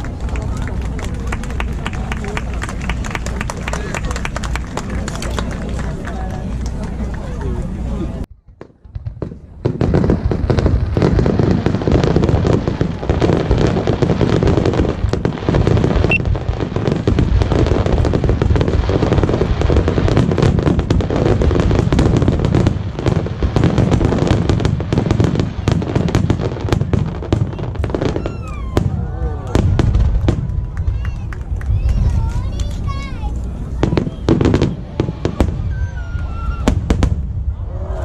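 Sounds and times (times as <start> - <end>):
fireworks bangs and crackling: 8.3 - 37.9.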